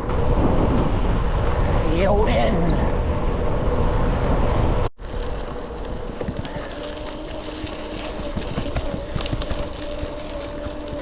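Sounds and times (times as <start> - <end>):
wind rumble: 0.0 - 11.0
e-bike motor whine: 2.8 - 11.0
tyre noise: 5.0 - 11.0.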